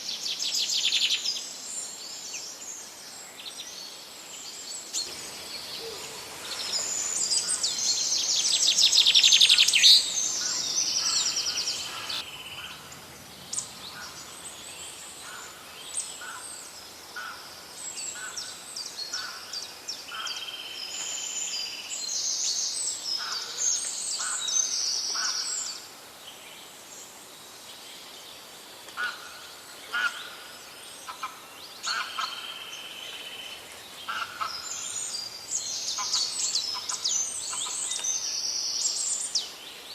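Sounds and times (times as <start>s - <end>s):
songbirds singing and calling: 0.0s - 39.9s
loud fast bird trill: 6.8s - 12.7s.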